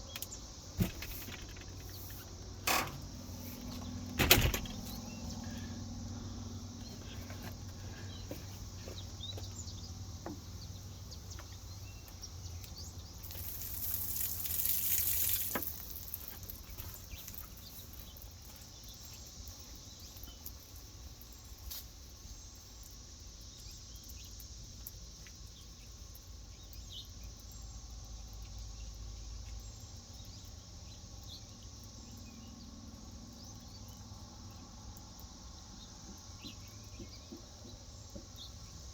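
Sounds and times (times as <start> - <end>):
insect buzz: 0.0 - 27.2
small clicks and knocks: 0.1 - 5.1
water running and splashing: 13.0 - 18.6.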